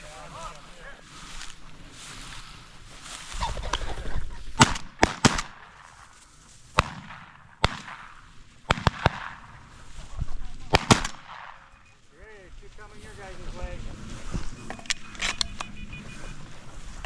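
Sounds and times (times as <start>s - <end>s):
shotgun shots: 4.6s - 6.1s, 6.7s - 9.8s, 10.6s - 11.8s.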